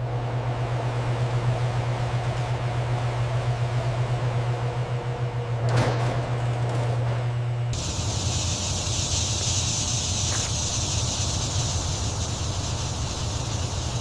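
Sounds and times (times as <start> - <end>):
low rumble with high hiss: 7.8 - 14.0.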